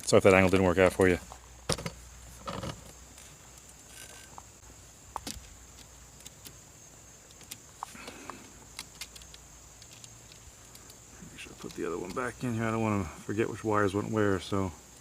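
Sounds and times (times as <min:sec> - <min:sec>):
high-pitched hiss: 0:00.0 - 0:15.0
small clicks: 0:07.2 - 0:12.3.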